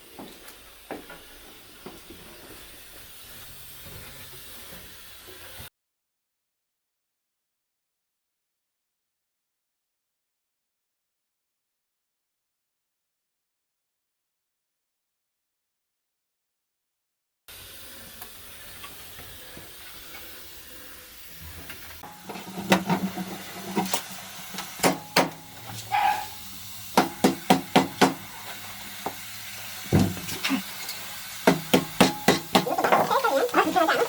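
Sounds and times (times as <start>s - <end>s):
sharp knocks of hard objects: 24.8s - 25.4s, 27.0s - 28.2s, 31.4s - 33.1s.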